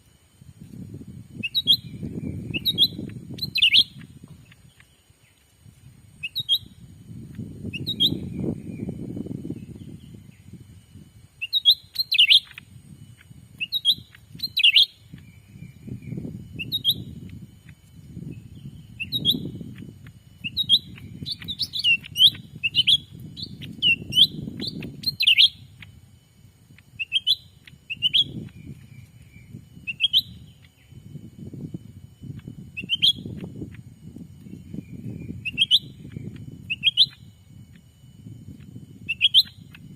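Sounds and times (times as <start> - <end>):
faint steady high tone: 0.0 - 39.9
birds chirping sharply: 18.2 - 26.0.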